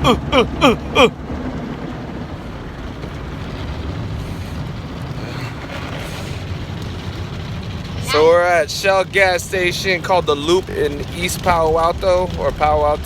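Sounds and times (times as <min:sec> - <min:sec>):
falling-pitch voice sounds: 0:00.0 - 0:01.1, 0:08.0 - 0:08.5
automatic car wash running: 0:00.0 - 0:13.0.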